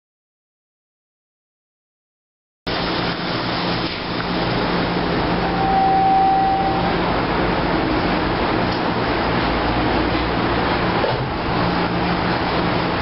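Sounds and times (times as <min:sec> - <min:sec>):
low hum: 0:04.6 - 0:08.0
thin whine: 0:05.2 - 0:07.2.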